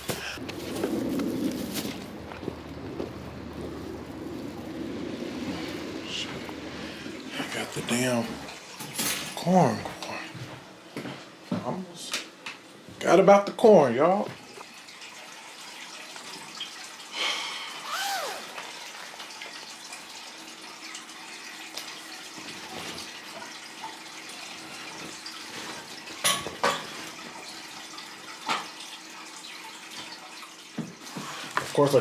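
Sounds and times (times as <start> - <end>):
tap water running into sink: 18.5 - 32.0.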